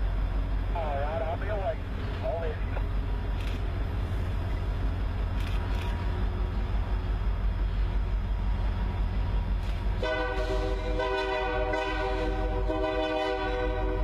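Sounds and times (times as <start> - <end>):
diesel locomotives rumbling: 0.0 - 14.0
locomotive air horn chord: 10.0 - 14.0.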